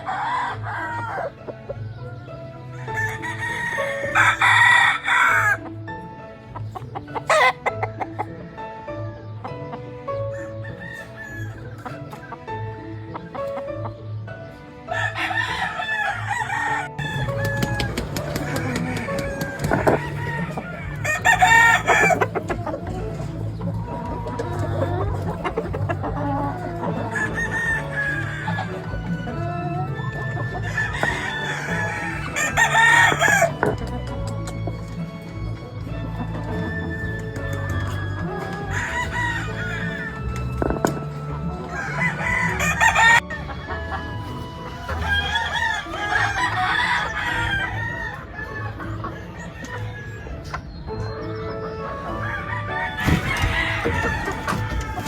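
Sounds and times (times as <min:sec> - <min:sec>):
rooster crowing: 0:00.0 - 0:01.4, 0:02.8 - 0:05.7, 0:10.3 - 0:11.7, 0:14.9 - 0:23.1, 0:24.0 - 0:33.8, 0:36.6 - 0:43.5, 0:44.8 - 0:50.4, 0:52.1 - 0:55.0
chickens clucking: 0:00.0 - 0:55.0
music with steady beat: 0:16.8 - 0:45.6.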